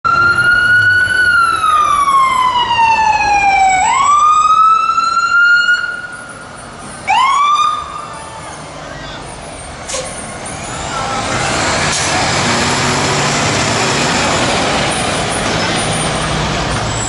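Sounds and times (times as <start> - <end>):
siren whoop: 0.1 - 6.2
fire engine siren wailing: 0.1 - 9.3.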